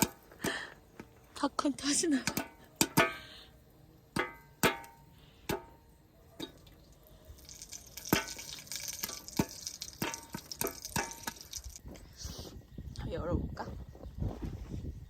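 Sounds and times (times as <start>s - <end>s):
popcorn popping: 4.1s - 5.8s, 7.4s - 11.8s
sizzling crackle: 6.4s - 11.8s.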